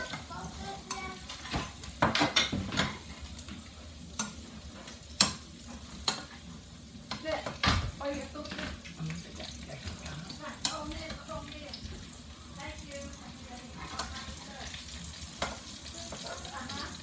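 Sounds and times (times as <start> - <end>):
spatula knocking and scraping pan: 0.0 - 8.8, 15.3 - 16.5
garlic sizzling in hot oil: 0.0 - 17.0.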